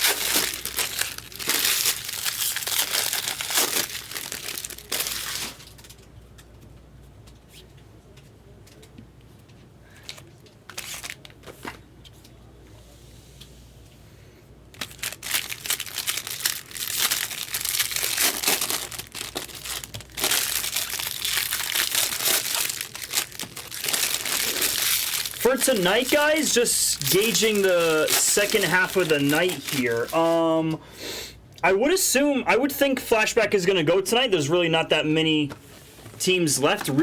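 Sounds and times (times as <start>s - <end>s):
foil wrappers crinkling and tearing: 0.0s - 6.0s, 9.9s - 11.8s, 14.7s - 30.8s.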